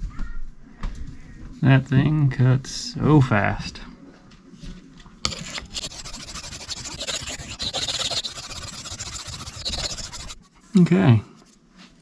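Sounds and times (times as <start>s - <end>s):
knife scraping on sharpening stone: 5.3s - 10.4s.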